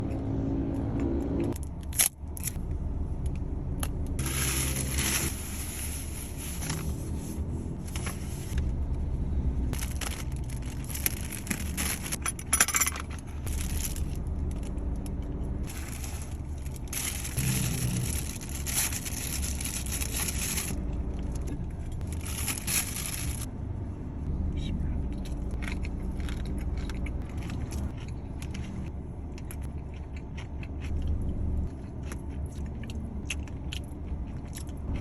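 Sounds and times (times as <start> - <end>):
car cabin hum: 2.6 - 23.4
food packaging crinkling: 9.8 - 12.2, 13.0 - 14.7, 15.6 - 20.8, 22.0 - 23.5.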